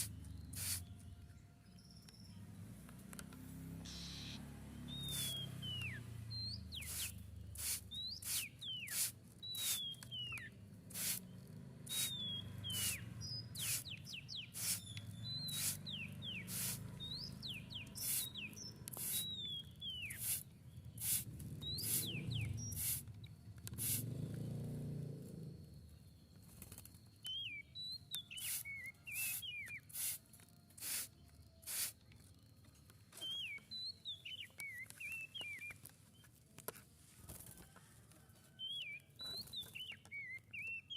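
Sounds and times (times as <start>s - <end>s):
songbird whistling: 0.0s - 1.0s, 3.8s - 11.2s, 11.9s - 23.1s, 27.2s - 32.0s, 33.1s - 35.8s, 38.5s - 40.9s.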